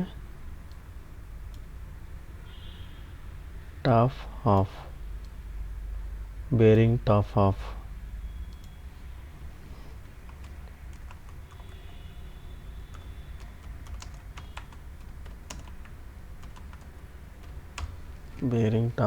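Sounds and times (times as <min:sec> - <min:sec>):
steady low hum: 0:03.3 - 0:19.0
keyboard typing: 0:08.5 - 0:08.8, 0:10.0 - 0:18.2.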